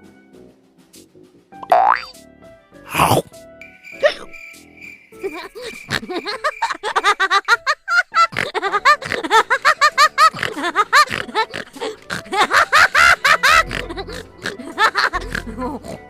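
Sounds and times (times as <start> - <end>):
cartoon music: 1.6 - 2.2.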